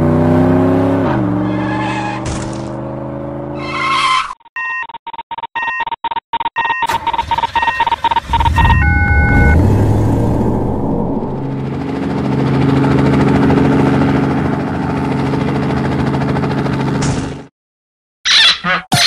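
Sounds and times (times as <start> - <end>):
cartoon car engine hum: 0.0 - 4.3, 6.9 - 17.5
electronic clicks and beeps: 4.3 - 9.6
low rumble: 8.3 - 12.0.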